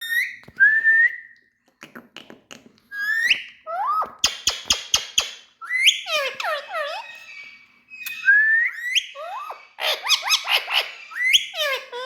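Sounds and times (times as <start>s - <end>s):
parakeet chirps: 3.0s - 12.0s
parakeet whistles: 4.2s - 7.4s, 8.0s - 11.6s.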